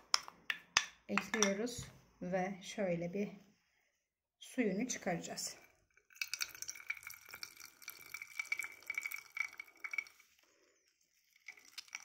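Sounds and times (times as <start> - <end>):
juice trickling and dripping: 5.6 - 12.0.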